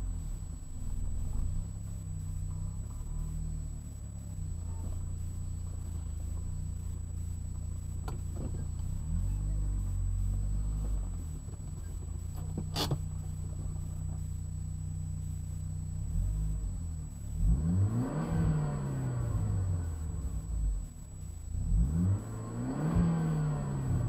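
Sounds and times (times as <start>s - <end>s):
car engine idling and revving: 0.0s - 24.0s
clicks inside car cabin: 8.0s - 8.9s.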